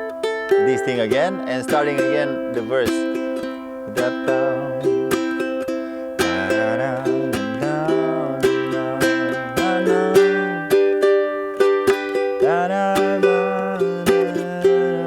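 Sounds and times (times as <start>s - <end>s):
ukulele strumming: 0.0s - 15.0s
low voice humming: 3.8s - 5.2s.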